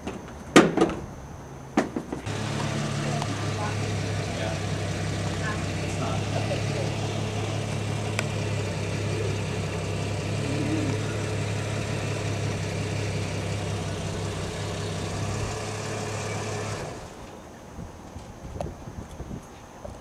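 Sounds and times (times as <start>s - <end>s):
vehicle engine idling: 2.2s - 18.0s.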